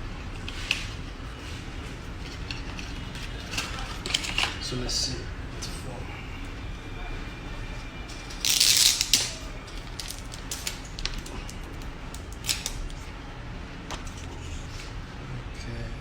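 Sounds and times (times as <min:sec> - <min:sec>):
packaging rustling: 0:08.1 - 0:13.1.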